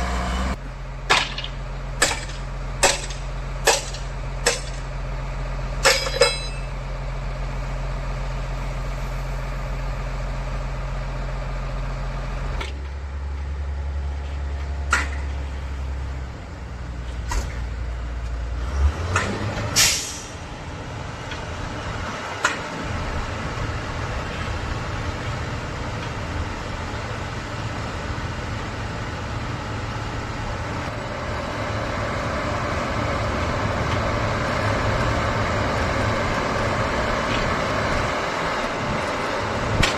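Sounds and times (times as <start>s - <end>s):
heavy diesel engine running: 0.0s - 39.9s
sharp metal clanks: 1.1s - 4.9s, 5.8s - 6.8s
brief hiss: 19.8s - 20.4s.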